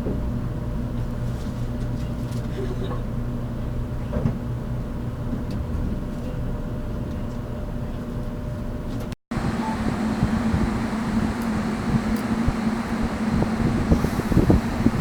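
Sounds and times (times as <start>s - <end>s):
electric train interior hum: 0.0s - 15.0s.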